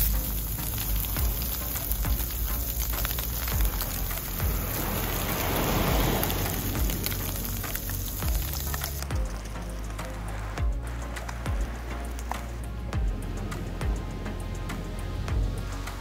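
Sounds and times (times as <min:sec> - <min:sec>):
fish frying in hot oil: 0:00.0 - 0:09.6
background music with a beat: 0:00.0 - 0:16.0.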